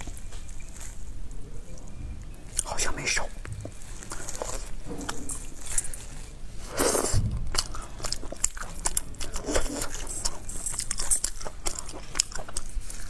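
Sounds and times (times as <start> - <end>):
person chewing wetly: 0.0 - 13.0.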